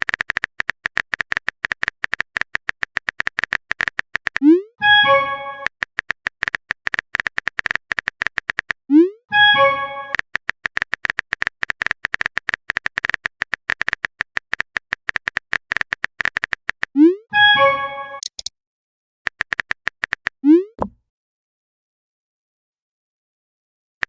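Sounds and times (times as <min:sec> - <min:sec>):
phone keyboard typing clicks: 0:00.0 - 0:04.5, 0:05.6 - 0:08.8, 0:10.1 - 0:17.0, 0:18.2 - 0:18.5, 0:19.3 - 0:21.0.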